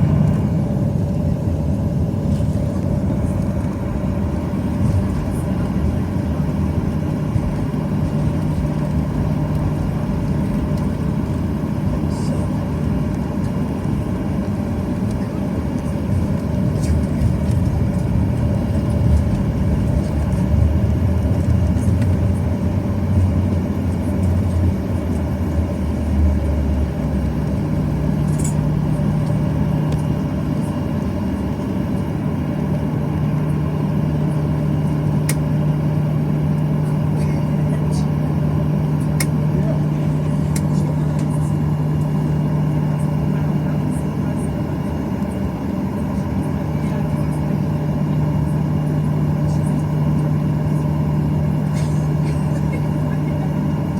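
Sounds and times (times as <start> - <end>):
low rumble: 0.0 - 13.2, 15.8 - 30.0
jet engine cabin noise: 0.0 - 53.9
steady hum: 0.0 - 53.9.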